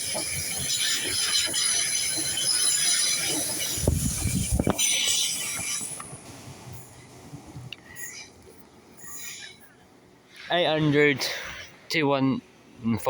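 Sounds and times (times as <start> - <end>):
high-pitched squeal of wheels and brakes: 0.0 - 6.2, 7.8 - 8.4, 9.0 - 11.1
train running: 0.0 - 12.8.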